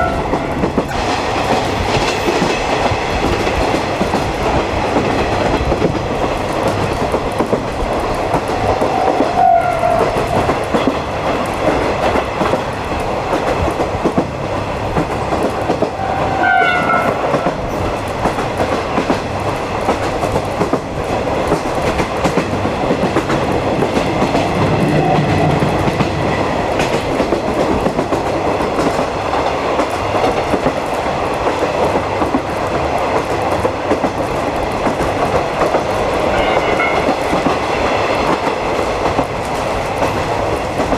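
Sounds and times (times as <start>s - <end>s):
train rumble: 0.0s - 40.9s
wheels clicking over rail joints: 0.0s - 40.9s.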